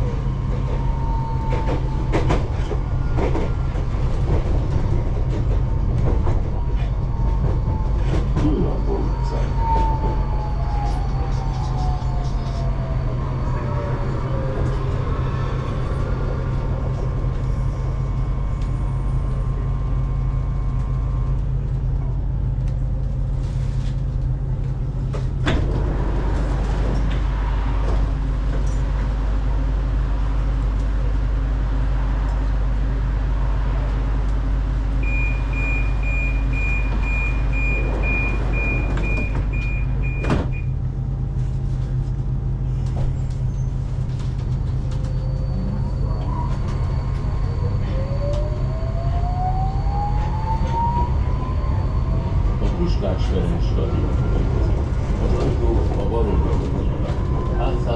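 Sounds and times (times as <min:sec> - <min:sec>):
train low rumble: 0:00.0 - 0:57.9
door closing warning beeps: 0:35.0 - 0:40.7.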